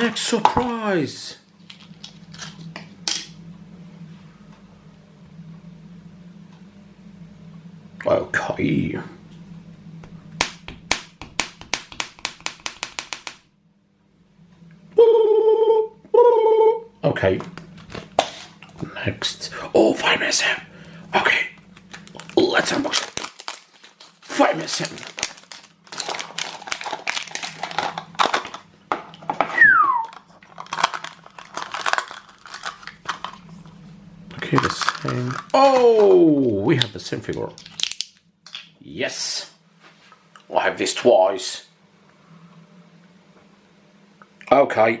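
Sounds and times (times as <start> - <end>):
sharp taps of hard objects: 10.4 - 13.4
steady pitched tone: 14.9 - 17.0
plastic wrapping crinkling: 21.7 - 29.4, 30.0 - 33.7, 34.4 - 36.1.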